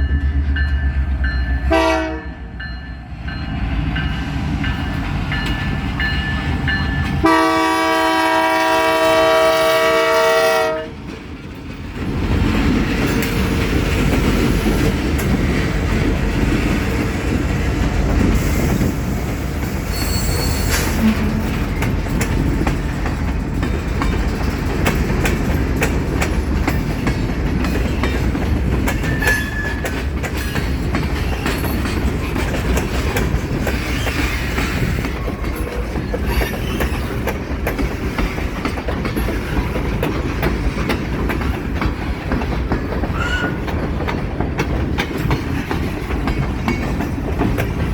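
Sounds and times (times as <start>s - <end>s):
train cars rumbling: 0.0s - 47.9s
wheels clicking over rail joints: 11.0s - 47.9s
high wheel squeal: 19.8s - 21.5s, 43.1s - 43.6s.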